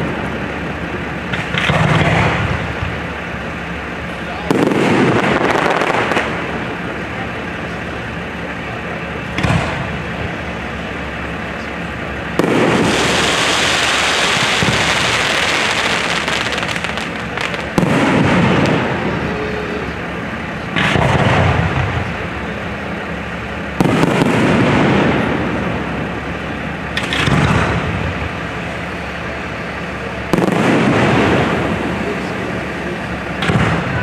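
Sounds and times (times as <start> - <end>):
fireworks bursting with echoes: 0.0 - 34.0.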